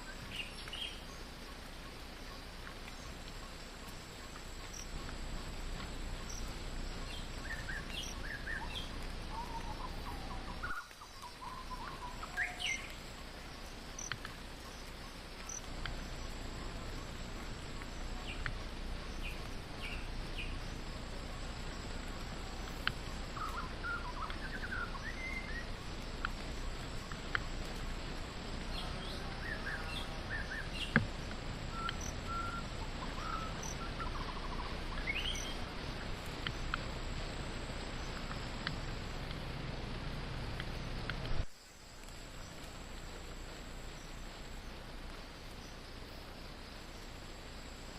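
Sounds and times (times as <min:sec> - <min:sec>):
background hiss: 0:00.0 - 0:47.9
high insect drone: 0:00.0 - 0:47.9.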